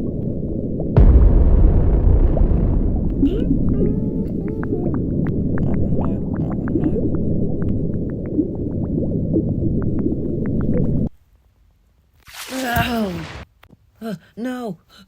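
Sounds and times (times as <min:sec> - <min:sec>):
deep underwater rumble: 0:00.0 - 0:11.1
bubbling pops: 0:00.1 - 0:11.1.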